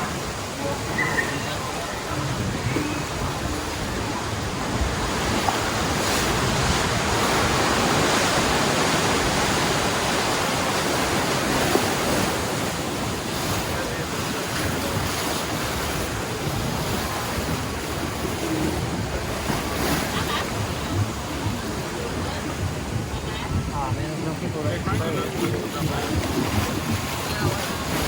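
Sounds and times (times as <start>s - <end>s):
rushing churning water: 0.0s - 28.0s
wind buffeting microphone: 0.0s - 28.0s.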